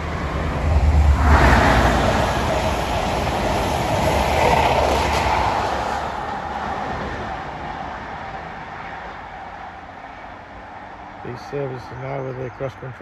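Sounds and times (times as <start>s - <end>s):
high speed train passing: 0.0s - 11.0s.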